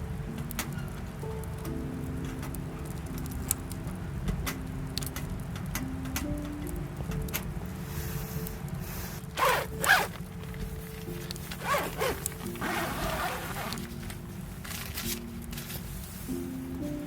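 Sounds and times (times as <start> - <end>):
soft rustle: 7.8 - 17.0
zipper being pulled: 9.4 - 10.2, 11.6 - 14.0.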